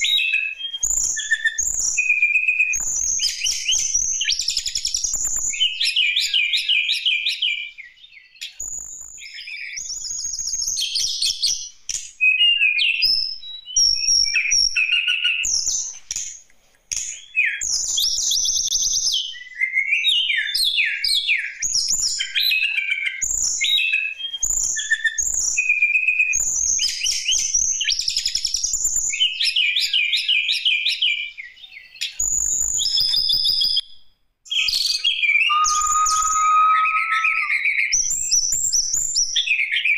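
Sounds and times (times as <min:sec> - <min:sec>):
songbird singing: 0:34.5 - 0:38.0.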